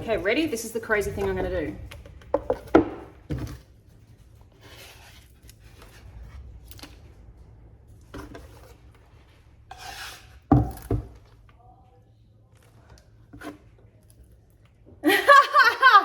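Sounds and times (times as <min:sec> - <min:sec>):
scraping and rustling: 0:00.0 - 0:11.6.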